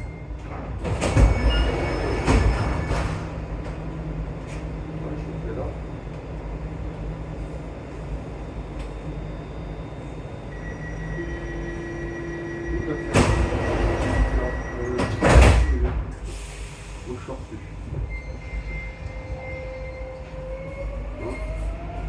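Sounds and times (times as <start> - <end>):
metro train rumbling in tunnel: 0.0 - 22.0.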